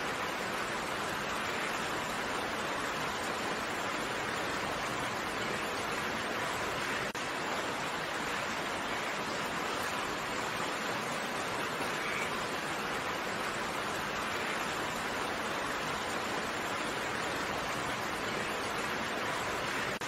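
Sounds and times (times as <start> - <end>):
steady rainfall: 0.0 - 20.0.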